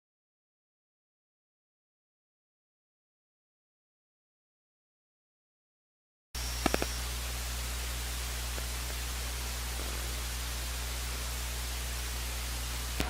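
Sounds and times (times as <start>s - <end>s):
low electrical hum: 6.4s - 13.0s
steady hiss: 6.4s - 13.0s.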